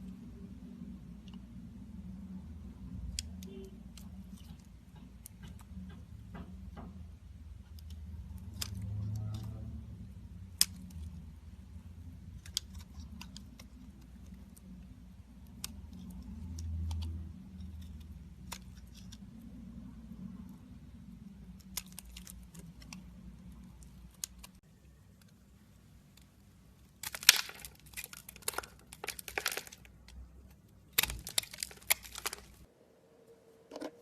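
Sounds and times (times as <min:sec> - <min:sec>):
low steady hum: 0:00.0 - 0:34.0
knife cracking soap bars: 0:07.5 - 0:09.7, 0:10.3 - 0:19.4, 0:21.2 - 0:24.6, 0:26.2 - 0:32.7.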